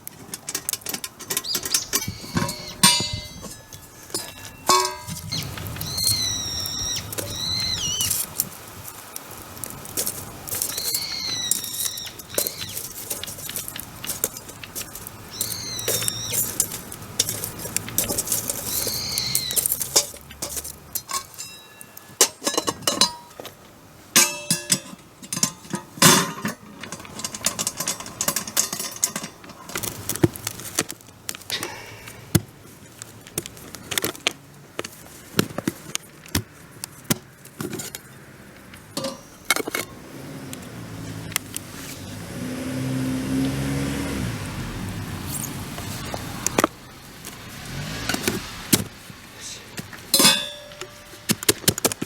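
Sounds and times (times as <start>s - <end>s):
metal cookware clinking: 0.2s - 8.1s, 10.0s - 30.0s, 37.7s - 40.0s, 50.1s - 51.4s
bird calling: 1.2s - 20.3s.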